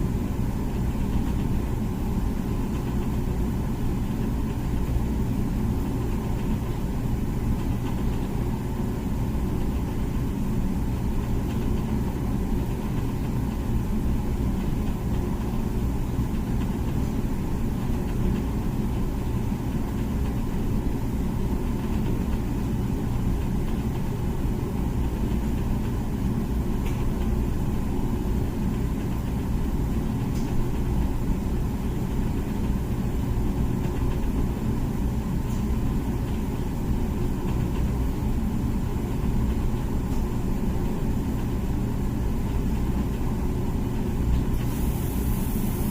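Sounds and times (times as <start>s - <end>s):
dishwasher pump hum: 0.0s - 45.9s.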